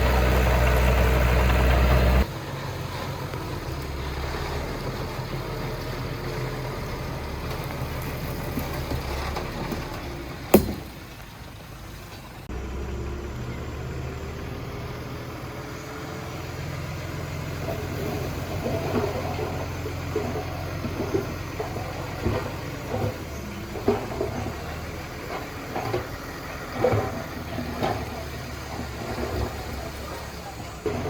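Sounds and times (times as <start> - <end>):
diesel engine running: 0.0 - 31.0
sharp knock: 10.6 - 10.9.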